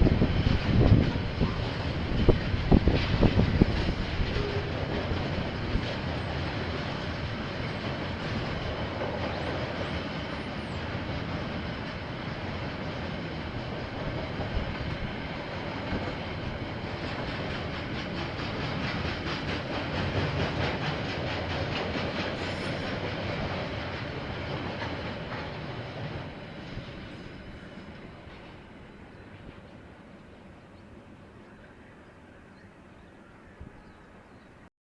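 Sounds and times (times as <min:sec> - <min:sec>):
train rolling past on rails: 0:00.0 - 0:34.6.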